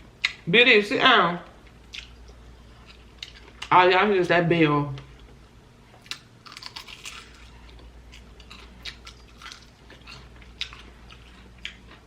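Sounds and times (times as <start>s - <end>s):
wet chewing: 6.0s - 12.0s.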